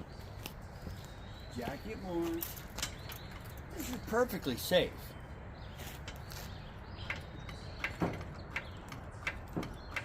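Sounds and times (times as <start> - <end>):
metallic clicks and knocks of jack: 7.0 - 10.0.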